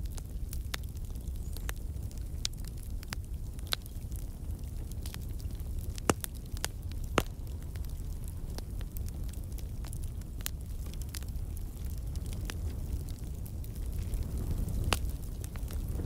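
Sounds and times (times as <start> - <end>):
wood fire crackling: 0.0 - 16.0
sharp pops and snaps: 5.9 - 7.9.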